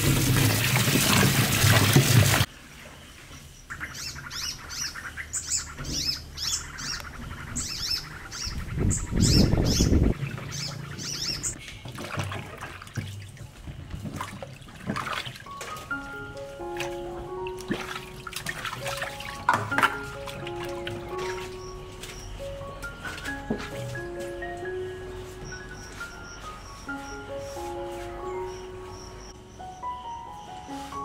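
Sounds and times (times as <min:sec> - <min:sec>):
running tap water: 0:00.0 - 0:02.5, 0:16.8 - 0:21.7.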